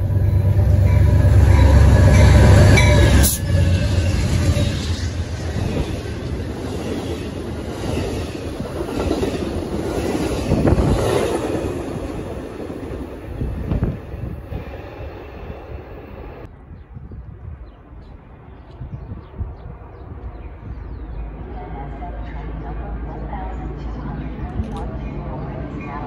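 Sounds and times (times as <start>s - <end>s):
train passing with wheel rumble: 0.0s - 26.0s.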